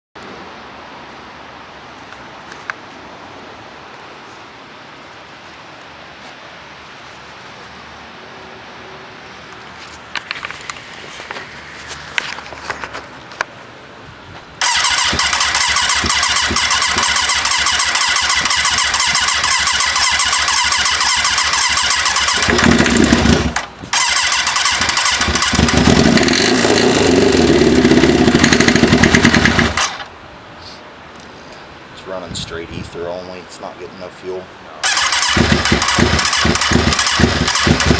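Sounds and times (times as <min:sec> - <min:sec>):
engine cranking: 0:14.6 - 0:30.1, 0:34.8 - 0:37.9
engine running roughly: 0:14.6 - 0:30.1, 0:34.8 - 0:37.9.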